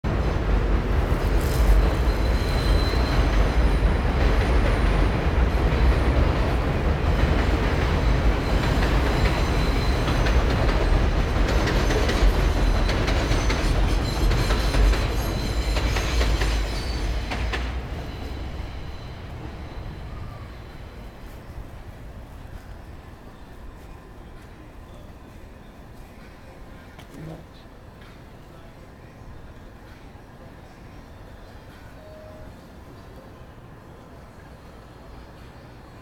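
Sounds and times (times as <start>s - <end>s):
train rumbling past: 0.0s - 36.0s
faint high wheel squeal: 1.5s - 3.9s, 8.0s - 10.4s, 12.5s - 21.6s, 30.6s - 32.8s.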